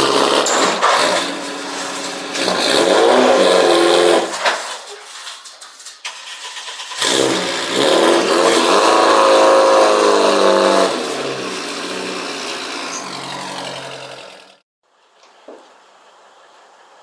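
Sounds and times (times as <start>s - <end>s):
car engine revving: 0.0s - 4.5s, 6.2s - 14.6s.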